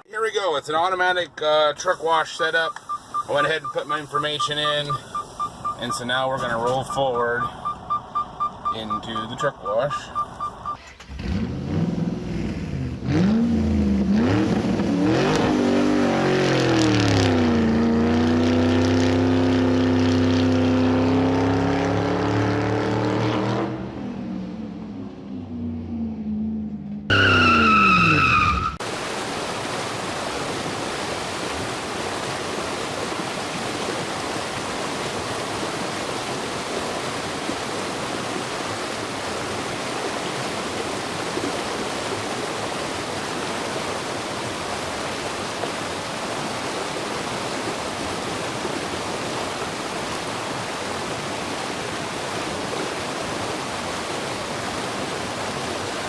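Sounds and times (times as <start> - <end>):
water jets spraying: 1.8 - 10.7.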